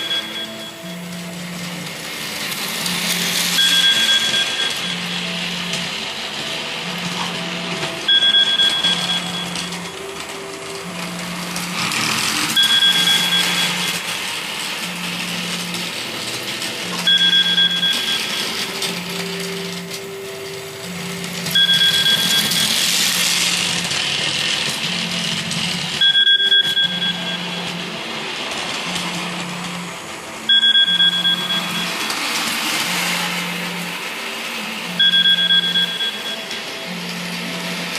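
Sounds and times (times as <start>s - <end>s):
model railway hiss and whirr: 0.0s - 8.1s, 9.4s - 17.0s, 26.9s - 35.0s.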